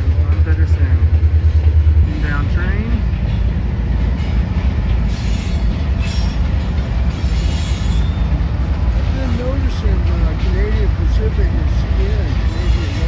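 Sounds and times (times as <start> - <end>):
freight train rumble: 0.0 - 13.0
high wheel squeal: 5.1 - 8.3.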